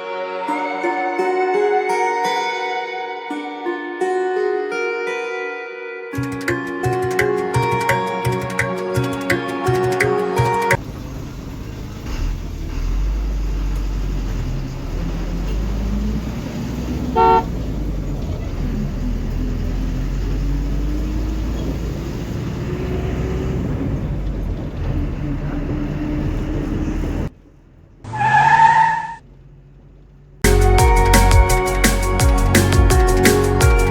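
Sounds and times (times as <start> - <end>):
vehicle engine rumbling: 10.5 - 33.9
car horn honking: 17.1 - 17.6.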